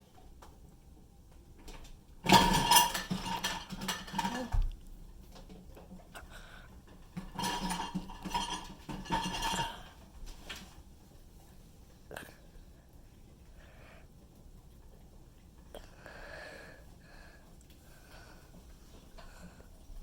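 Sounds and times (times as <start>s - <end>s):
dishes and cutlery clattering: 1.7s - 10.7s.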